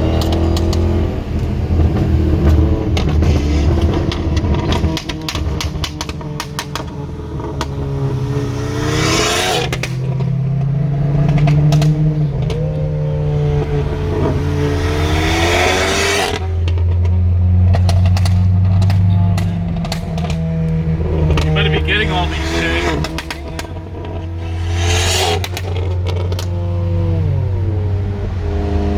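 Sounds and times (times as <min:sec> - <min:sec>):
exhaust pops and crackles: 0:00.0 - 0:27.4
car engine accelerating: 0:00.0 - 0:28.9.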